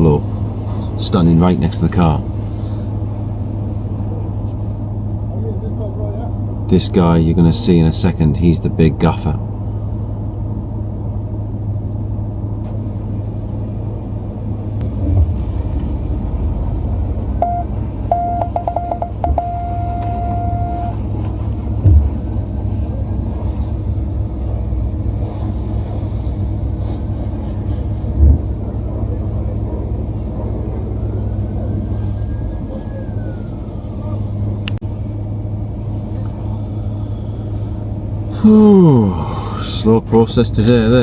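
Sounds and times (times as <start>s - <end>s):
car engine idling rumble: 0.0s - 41.0s
heavy low thumps: 14.8s - 23.3s.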